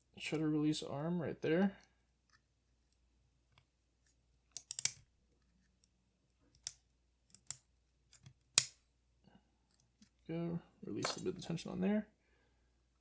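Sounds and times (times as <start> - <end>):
metal tools clicking: 4.6 - 5.0, 11.0 - 11.6.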